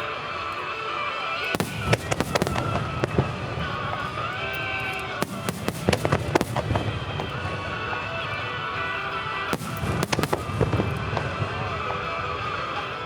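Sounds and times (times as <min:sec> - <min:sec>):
firework shells bursting: 0:00.0 - 0:13.0
music: 0:00.0 - 0:13.0.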